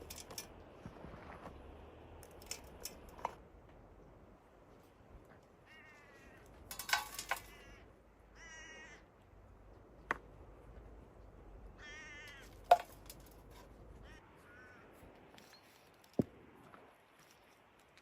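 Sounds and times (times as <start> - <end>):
bird calling: 7.3 - 9.1, 11.8 - 12.6, 14.0 - 15.8.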